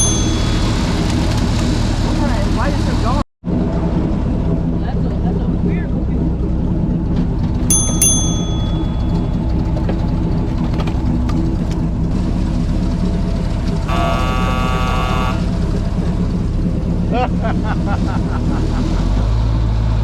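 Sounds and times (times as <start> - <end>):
high-pitched tone: 0.0 - 1.1, 13.9 - 15.5
sharp clicks with ringing: 0.0 - 1.4, 7.7 - 9.7
airboat engine and propeller: 0.0 - 20.0.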